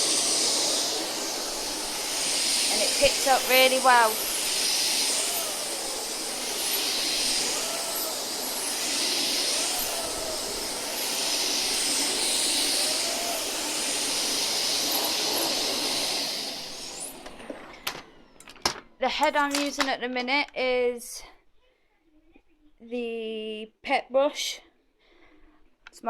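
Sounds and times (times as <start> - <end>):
vacuum cleaner running: 0.0 - 18.8.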